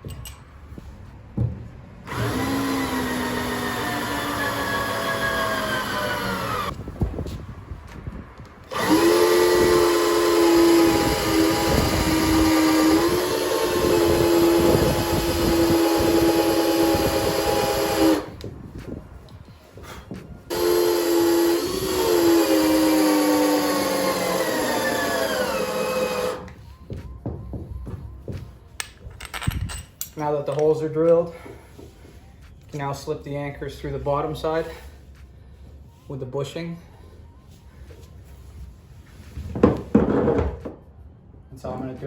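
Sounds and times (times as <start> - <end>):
power drill drilling: 2.0 - 6.7, 8.7 - 18.4, 20.5 - 26.6.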